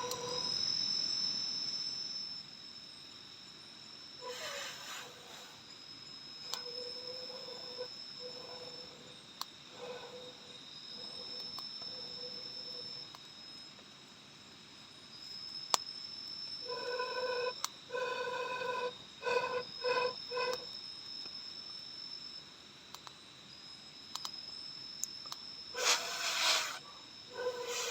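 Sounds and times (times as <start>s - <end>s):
insects chirring: 0.0s - 27.9s
animal buzzy call: 4.2s - 5.6s, 16.7s - 20.7s, 25.8s - 27.9s.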